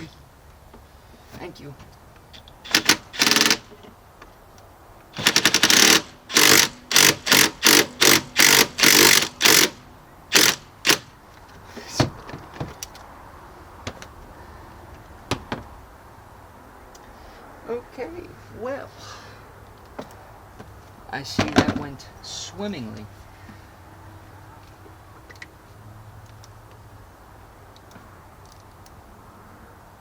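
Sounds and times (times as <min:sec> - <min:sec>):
impact wrench hammering: 0:02.6 - 0:03.7, 0:05.2 - 0:11.1.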